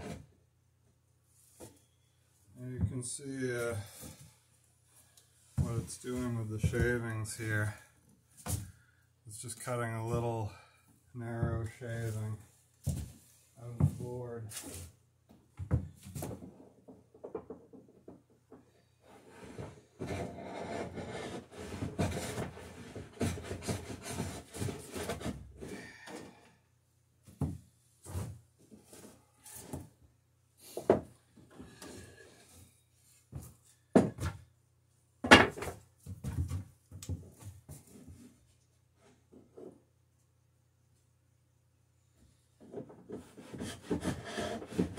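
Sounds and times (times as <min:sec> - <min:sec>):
tool scraping wood: 0:19.1 - 0:25.8, 0:43.0 - 0:44.9.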